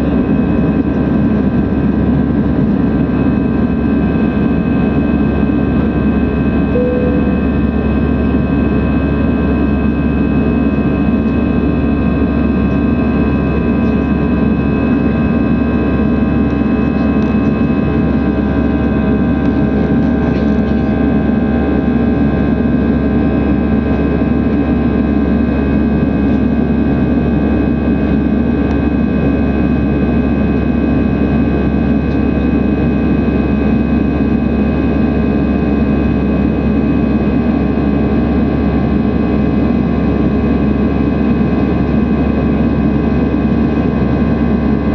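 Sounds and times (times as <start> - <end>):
jet engines roaring: 0.0 - 44.9
brief tone: 6.7 - 8.3.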